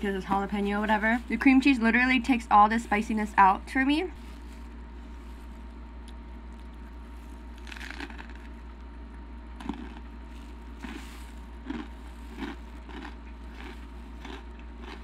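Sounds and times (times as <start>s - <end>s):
steady low hum: 0.0s - 15.0s
crunchy chewing: 4.2s - 15.0s.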